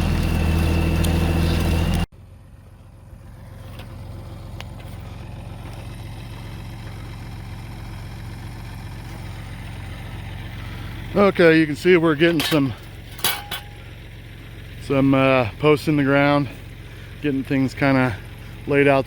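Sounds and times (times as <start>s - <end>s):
auger engine running: 0.0s - 19.0s
engine idling: 0.0s - 19.0s.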